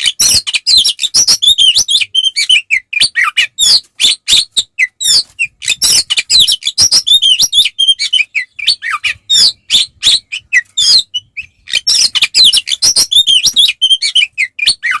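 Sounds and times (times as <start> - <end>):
magpie-robin singing: 0.0 - 15.0.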